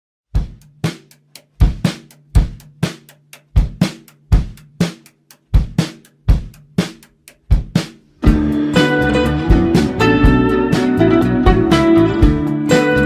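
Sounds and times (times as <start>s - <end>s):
drum kit beat: 0.3s - 13.0s
hi-hat ticks: 0.4s - 10.4s.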